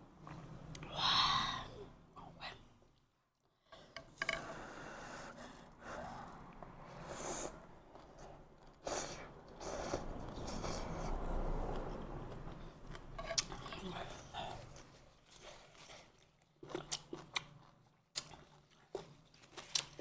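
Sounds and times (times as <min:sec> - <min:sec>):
chewing and mouth sounds: 0:07.9 - 0:20.0.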